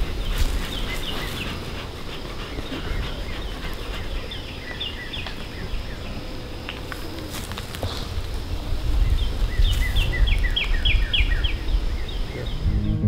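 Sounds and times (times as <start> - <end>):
birds chirping: 0.0 - 13.0
wind rumble on microphone: 8.1 - 13.0.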